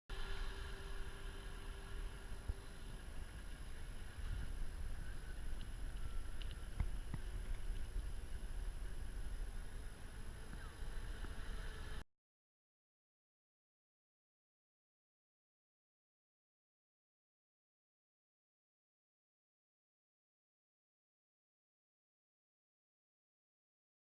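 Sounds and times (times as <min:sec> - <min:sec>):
faint motor whine: 0:00.1 - 0:12.0
model boat low rumble: 0:00.1 - 0:12.0.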